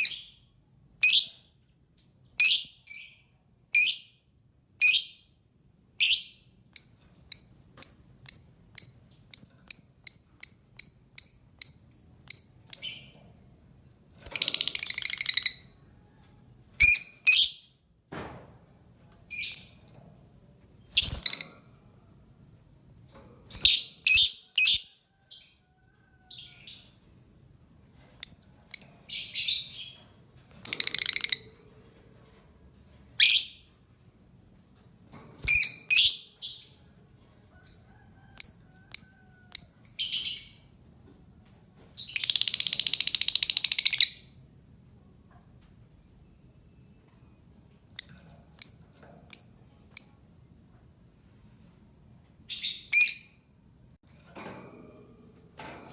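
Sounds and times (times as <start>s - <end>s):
high bird chirps: 2.4s - 4.2s, 6.0s - 13.2s, 14.2s - 15.8s, 23.6s - 25.0s.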